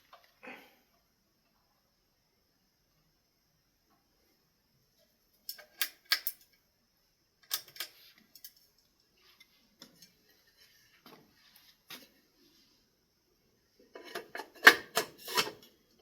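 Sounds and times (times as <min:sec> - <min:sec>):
small hard parts clicking: 0:05.4 - 0:06.6.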